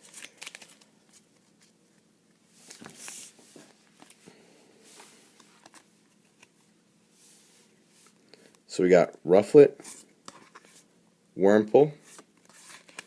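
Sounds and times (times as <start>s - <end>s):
foil pack crinkles and clicks: 0.0s - 0.9s.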